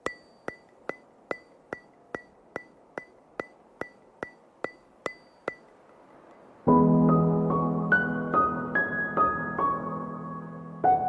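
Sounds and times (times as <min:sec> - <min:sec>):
wood block ticking: 0:00.0 - 0:06.5.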